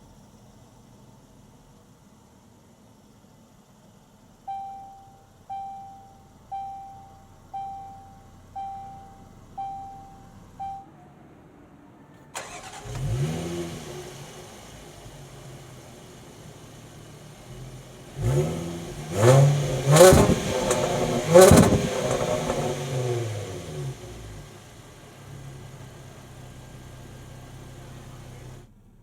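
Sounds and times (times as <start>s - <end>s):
car engine starting and idling: 0.0s - 29.0s
dashboard chime: 4.5s - 10.9s.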